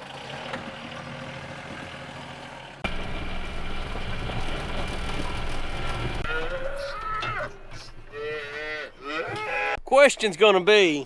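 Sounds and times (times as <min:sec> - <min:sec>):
vehicle engine running: 0:00.0 - 0:06.3.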